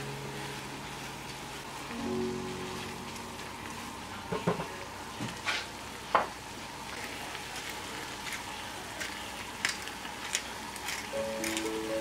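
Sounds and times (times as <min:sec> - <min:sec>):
food sizzling in a frying pan: 0:00.0 - 0:08.5.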